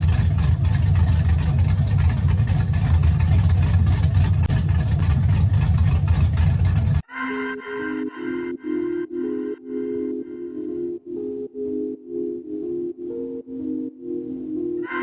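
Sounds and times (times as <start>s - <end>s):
car engine idling: 0.0s - 7.0s.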